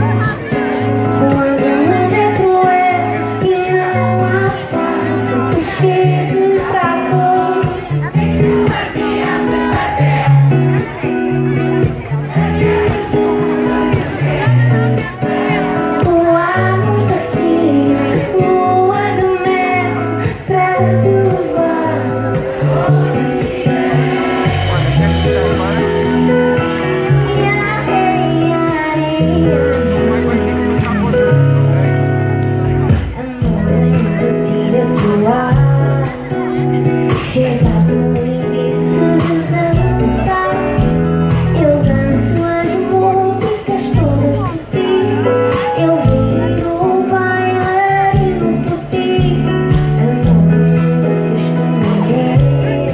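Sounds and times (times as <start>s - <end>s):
woman singing: 0.0s - 10.0s, 13.7s - 24.9s, 27.0s - 31.1s, 32.9s - 52.9s
band playing: 0.0s - 52.9s
guitar: 0.0s - 52.9s
repeating bass line: 21.9s - 28.6s.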